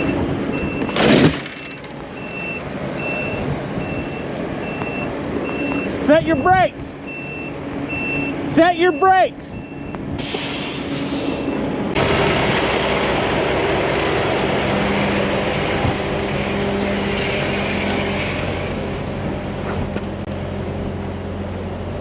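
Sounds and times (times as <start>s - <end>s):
reversing beep: 0.0s - 6.0s, 7.1s - 10.0s, 11.3s - 11.7s
diesel truck engine running: 0.0s - 22.0s
loud rushing noise: 10.0s - 19.7s.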